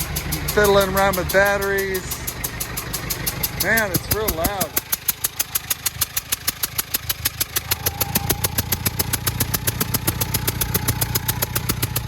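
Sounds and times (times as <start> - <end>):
diesel engine idling: 0.0 - 12.0
sharp rapid engine ticking: 0.0 - 12.0.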